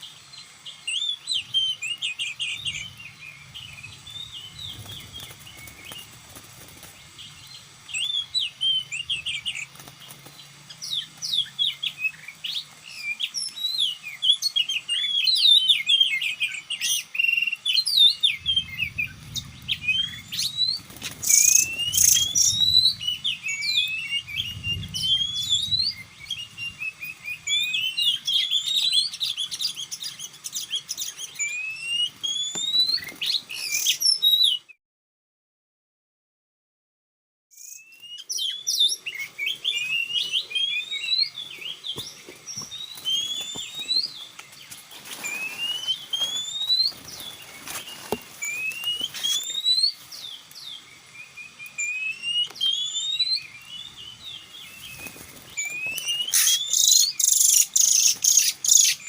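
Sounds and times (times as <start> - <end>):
bird singing chirps and whistles: 0.0 - 6.2, 7.0 - 34.8, 37.5 - 59.0
muffled rustles: 41.5 - 49.5.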